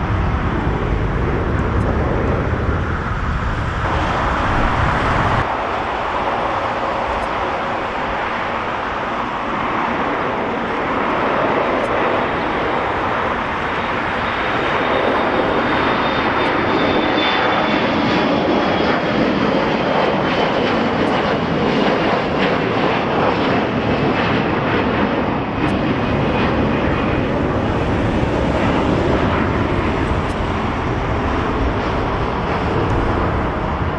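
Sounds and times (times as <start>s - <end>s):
jet engines roaring: 0.0s - 33.9s
high whine falling in pitch: 1.6s - 9.1s.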